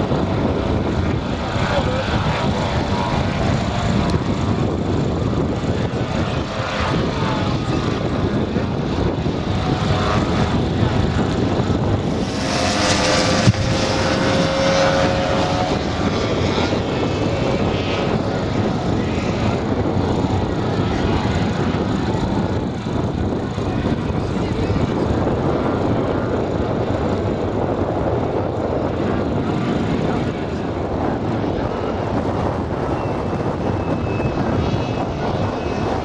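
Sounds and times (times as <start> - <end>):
model aircraft engines: 0.0 - 36.0.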